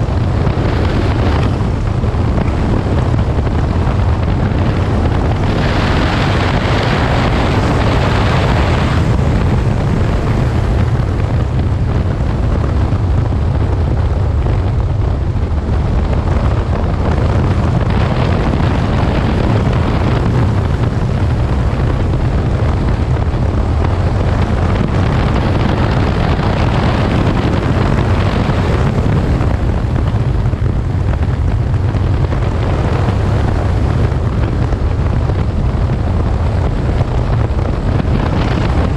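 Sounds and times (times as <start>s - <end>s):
motorcycle engine rumble: 0.0s - 38.9s
wind rush over microphone: 0.0s - 38.9s.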